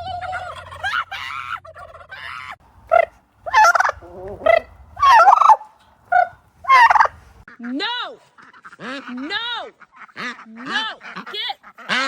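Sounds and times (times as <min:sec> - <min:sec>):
turkeys gobbling: 0:00.2 - 0:07.5.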